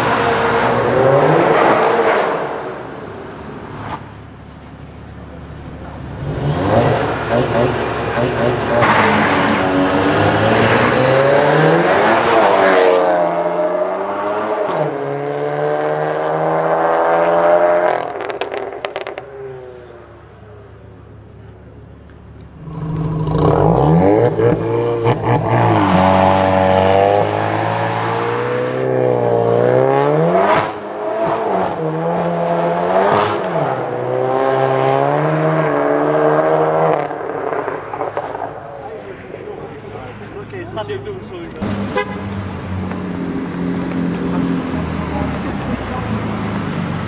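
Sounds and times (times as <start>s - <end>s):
sports car engines accelerating: 0.0s - 47.0s
exhaust crackling: 18.0s - 29.3s, 37.0s - 47.0s.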